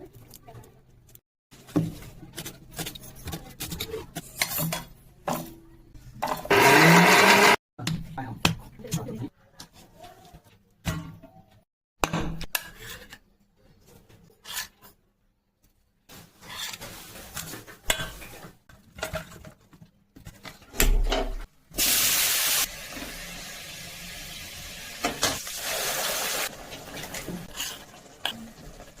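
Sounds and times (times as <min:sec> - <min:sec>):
utensils scraping in a pan: 0:01.9 - 0:05.5, 0:14.3 - 0:15.0, 0:16.2 - 0:19.5, 0:26.9 - 0:28.6.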